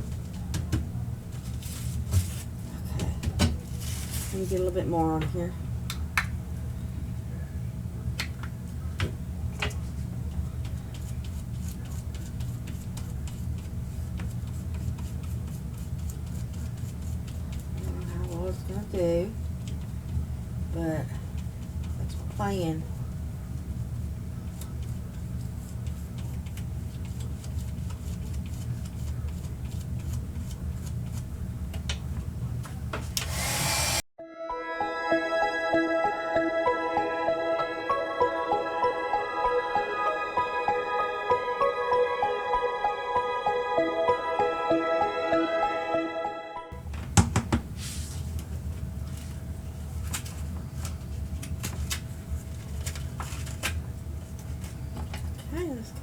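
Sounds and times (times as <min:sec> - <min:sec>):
soft background music: 0:17.8 - 0:19.3, 0:34.2 - 0:46.8.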